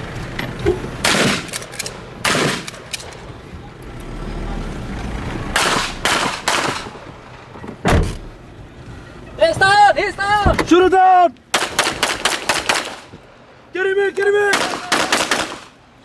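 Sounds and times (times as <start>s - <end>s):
gunshots with echo: 5.6s - 6.9s.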